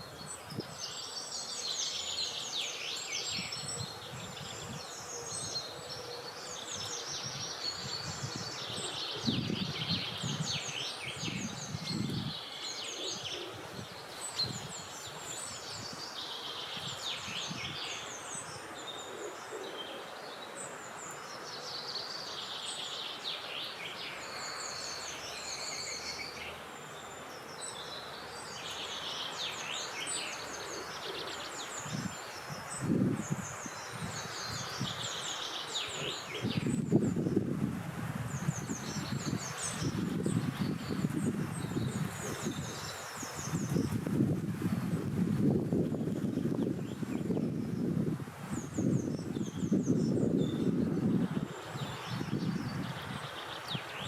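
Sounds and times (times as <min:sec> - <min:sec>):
wind rumbling on microphone: 0:00.0 - 0:01.6, 0:03.2 - 0:20.3, 0:30.0 - 0:54.0
birds chirping and trilling: 0:00.0 - 0:37.6, 0:38.3 - 0:54.0.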